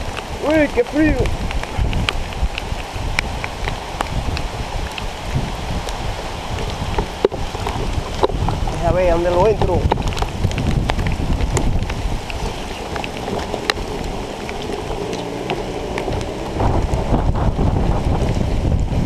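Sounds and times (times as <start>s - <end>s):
wind buffeting microphone: 0.0s - 19.0s
motocross bike engine: 13.2s - 18.8s.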